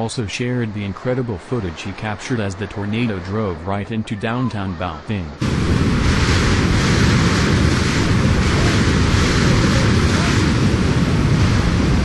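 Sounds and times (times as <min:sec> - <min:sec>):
strong wind buffeting microphone: 0:04.5 - 0:12.0.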